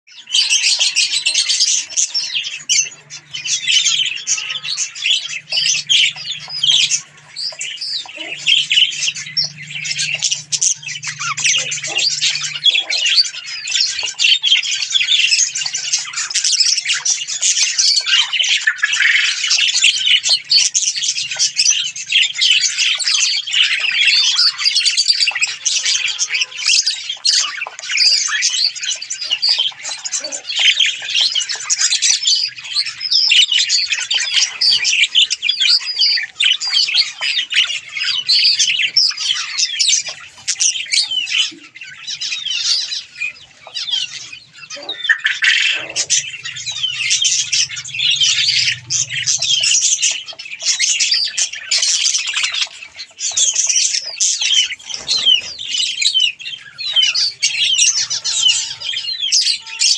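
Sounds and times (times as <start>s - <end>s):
budgerigars chattering: 0.1s - 59.9s.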